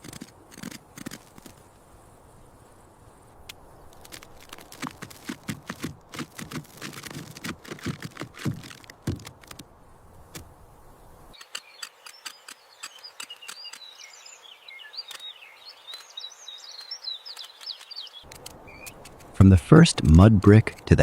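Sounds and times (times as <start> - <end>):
scattered clicks: 0.0 - 1.6, 3.4 - 9.6, 11.4 - 13.9, 15.9 - 21.0
patter of taps and thumps: 4.8 - 9.6
birds chirping: 10.8 - 21.0.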